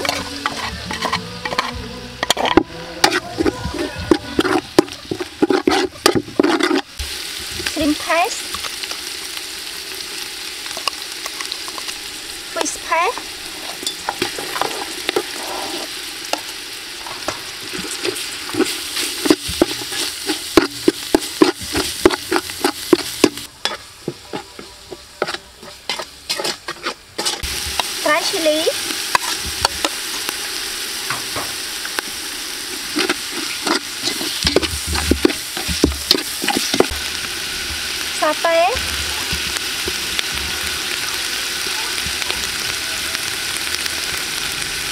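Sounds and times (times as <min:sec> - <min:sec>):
metal spatula scraping a pot: 0:00.0 - 0:07.0, 0:13.4 - 0:16.0, 0:17.7 - 0:28.4, 0:29.1 - 0:30.3, 0:32.8 - 0:36.9
paste sizzling in oil: 0:00.0 - 0:44.9.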